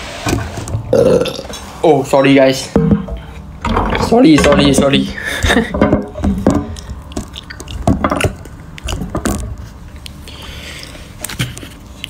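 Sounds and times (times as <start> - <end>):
chewing and mouth sounds: 6.6 - 12.0.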